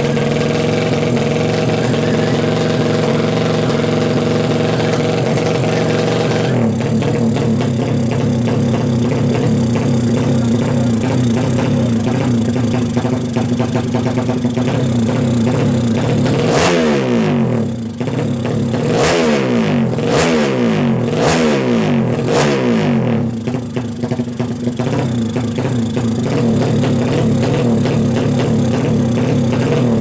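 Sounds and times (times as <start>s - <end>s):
motorcycle engine idling and revving: 0.0s - 30.0s.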